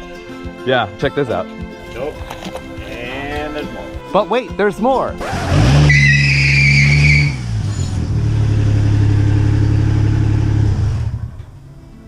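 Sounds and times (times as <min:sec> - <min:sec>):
high screech: 0:05.2 - 0:08.1
car engine driving past: 0:05.2 - 0:12.0.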